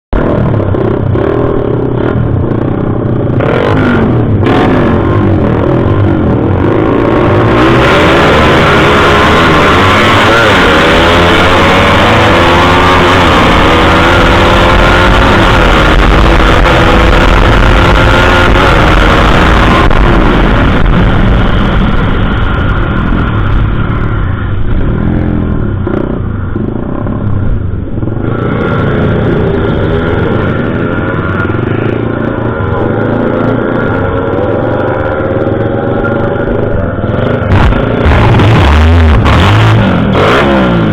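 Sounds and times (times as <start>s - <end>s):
motorcycle engine revving: 0.1s - 40.9s.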